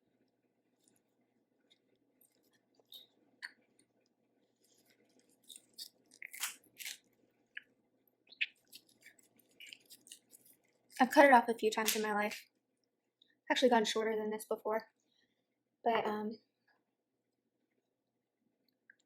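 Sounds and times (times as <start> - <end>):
chewing and crunching food: 0.2 - 13.3.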